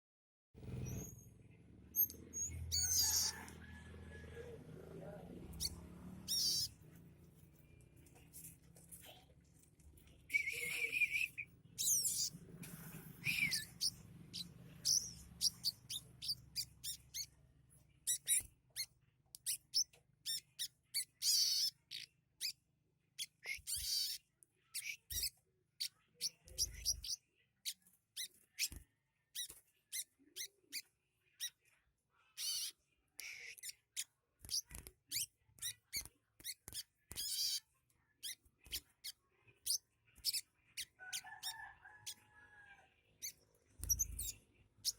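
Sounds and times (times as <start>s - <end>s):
bird chirps and trills: 1.9s - 3.6s, 5.5s - 6.8s, 10.3s - 12.4s, 13.0s - 17.4s, 18.0s - 22.6s, 23.2s - 28.8s, 32.4s - 42.3s, 43.1s - 44.9s.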